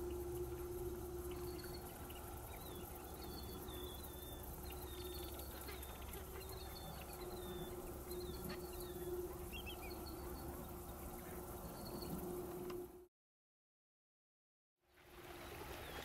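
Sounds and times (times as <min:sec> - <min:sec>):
small birds chirping: 0:00.0 - 0:12.3
faint low hum: 0:00.0 - 0:13.1.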